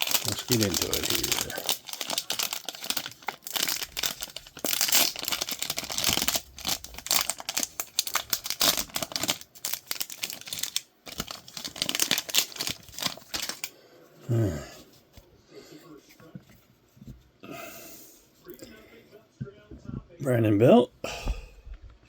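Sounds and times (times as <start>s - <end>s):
plastic wrapper crinkling and tearing: 0.0s - 13.7s.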